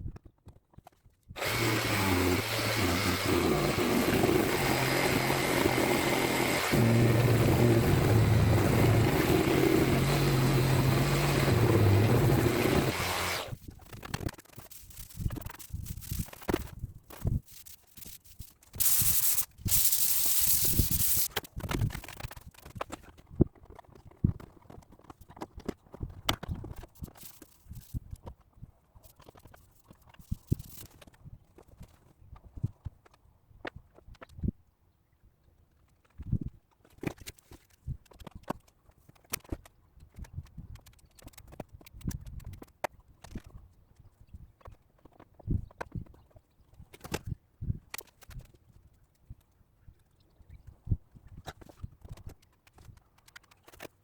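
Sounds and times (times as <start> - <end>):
spray hiss: 18.8 - 21.3.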